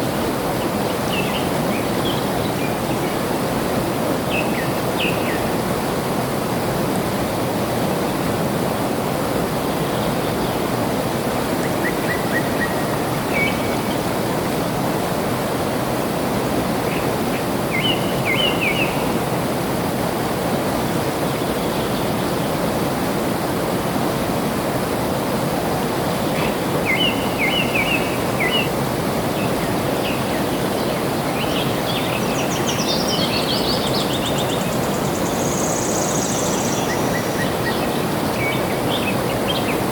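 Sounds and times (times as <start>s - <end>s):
water rushing: 0.0s - 39.9s
birds chirping: 26.3s - 39.9s.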